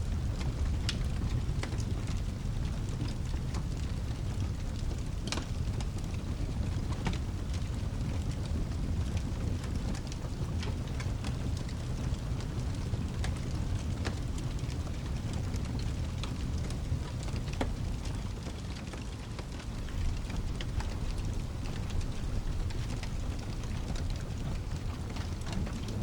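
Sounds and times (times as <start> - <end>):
fireplace crackling: 0.0 - 26.0
steady rain: 0.0 - 26.0
low rumble: 19.7 - 26.0.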